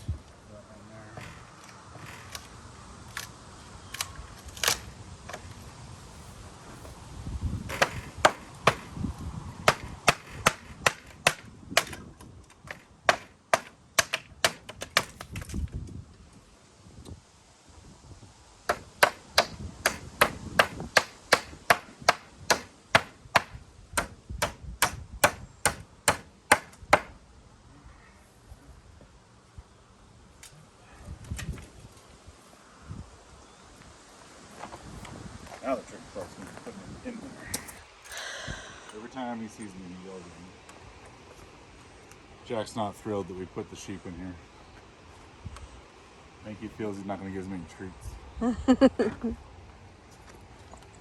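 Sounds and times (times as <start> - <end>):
hammer driving nails into wood: 1.2 - 2.5, 7.7 - 9.0, 9.6 - 15.5, 18.7 - 27.2
scattered knocks: 7.7 - 8.9, 9.6 - 12.0, 12.7 - 15.3, 18.7 - 27.1.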